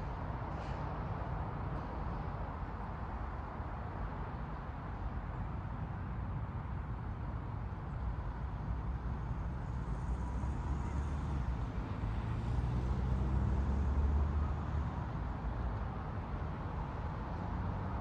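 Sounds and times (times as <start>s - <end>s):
car passing by: 9.4s - 15.8s.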